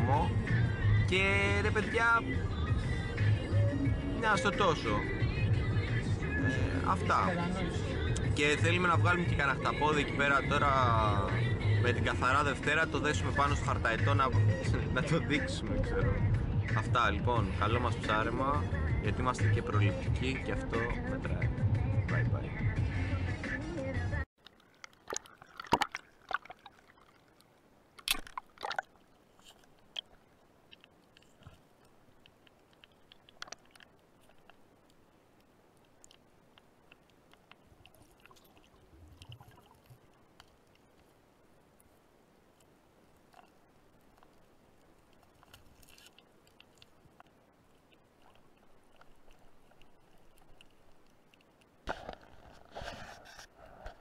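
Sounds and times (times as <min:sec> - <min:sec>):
underwater knocks and rustles: 0:24.4 - 0:35.0, 0:35.7 - 0:41.2, 0:42.6 - 0:54.0
underwater clicks and crackles: 0:24.4 - 0:54.0.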